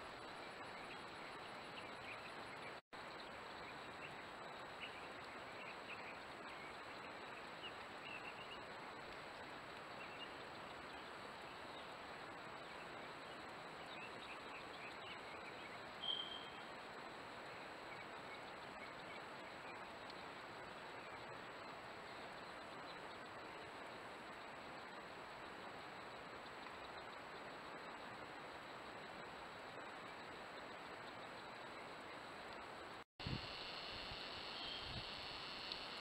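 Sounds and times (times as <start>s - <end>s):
outdoor background hiss: 0.0s - 36.0s
faint bird chirps: 12.6s - 32.6s, 33.6s - 36.0s.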